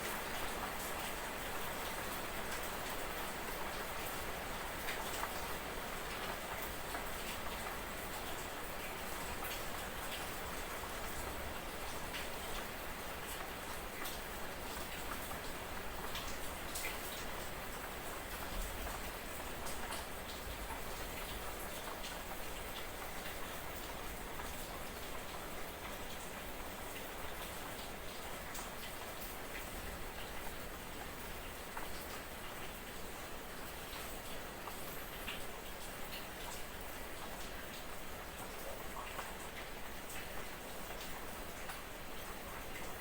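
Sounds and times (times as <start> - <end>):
light drizzle patter: 0.0 - 43.0
fine rain hissing: 23.2 - 40.9.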